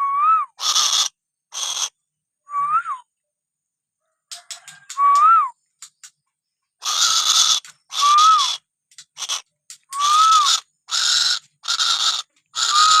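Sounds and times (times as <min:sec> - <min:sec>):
bird harsh hissing calls: 0:00.6 - 0:02.0, 0:06.8 - 0:13.0
whistled bird note: 0:05.0 - 0:05.6.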